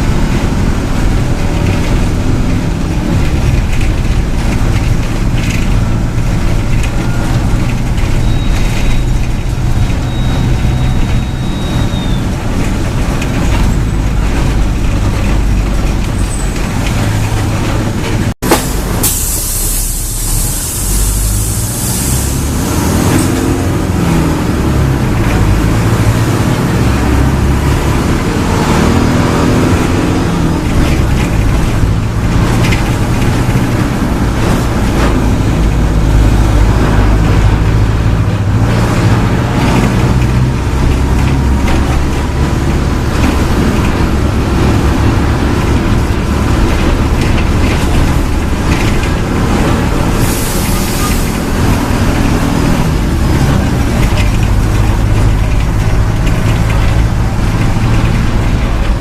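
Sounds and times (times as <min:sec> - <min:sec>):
bus diesel engine revving: 0:00.0 - 0:59.0
air hiss: 0:18.5 - 0:22.4.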